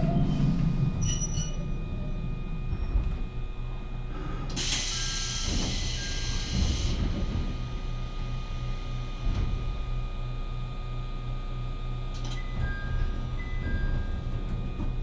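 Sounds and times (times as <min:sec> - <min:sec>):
train running rumble: 0:00.0 - 0:15.0
brief high squeal: 0:01.0 - 0:01.6.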